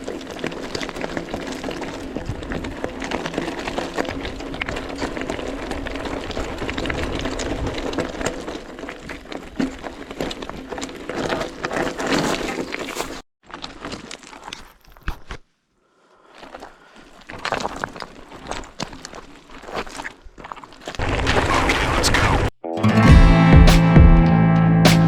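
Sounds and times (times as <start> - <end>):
bike rattling: 0.0 - 13.2
tyres crunching on stones: 0.0 - 15.5, 16.3 - 21.7.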